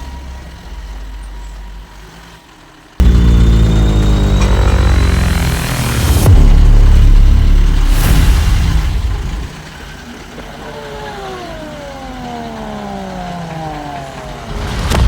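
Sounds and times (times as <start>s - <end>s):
heavy vehicle engine rumble: 0.0s - 15.0s
falling engine whine: 3.0s - 15.0s.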